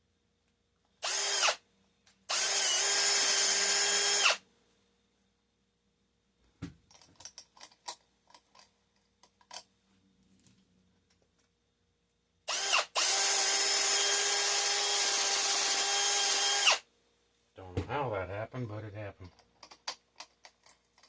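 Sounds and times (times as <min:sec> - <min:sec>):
electric drill whining: 0:01.0 - 0:01.6, 0:02.3 - 0:04.4, 0:12.5 - 0:16.8.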